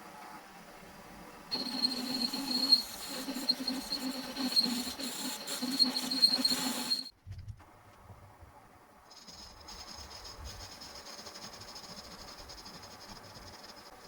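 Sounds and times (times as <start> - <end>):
hiss: 1.5 - 7.1
machine whining: 1.5 - 7.1.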